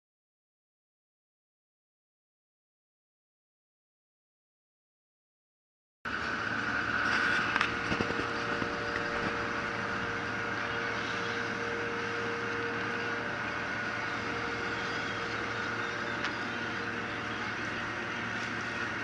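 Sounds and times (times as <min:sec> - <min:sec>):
engine droning: 0:06.1 - 0:19.0.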